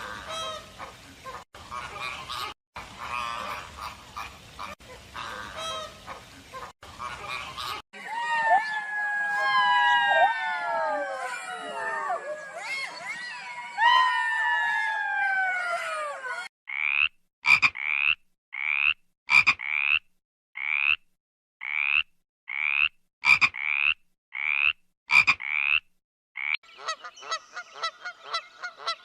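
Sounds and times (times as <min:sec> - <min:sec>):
long falling animal call: 0:08.0 - 0:16.5
frog croaking: 0:16.7 - 0:21.0, 0:21.6 - 0:26.6.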